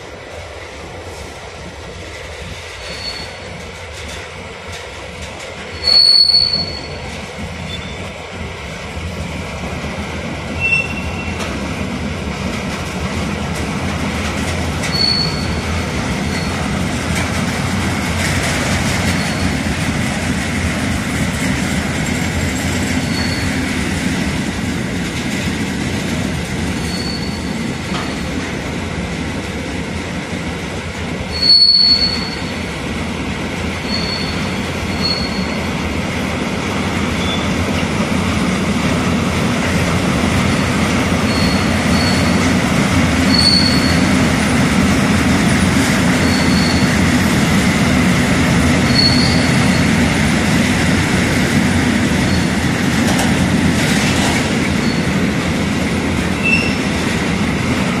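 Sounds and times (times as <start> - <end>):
train wheels rumbling on track: 0.0 - 58.0
high-pitched wheel squeals: 2.8 - 3.4, 5.7 - 7.1, 7.7 - 8.1, 10.6 - 11.4, 14.8 - 16.6, 19.1 - 19.6, 23.0 - 23.6, 26.8 - 28.0, 31.3 - 32.6, 33.8 - 35.7, 37.2 - 37.5, 40.6 - 42.4, 43.3 - 44.1, 46.2 - 47.0, 48.8 - 50.0, 54.8 - 55.1, 56.4 - 56.9.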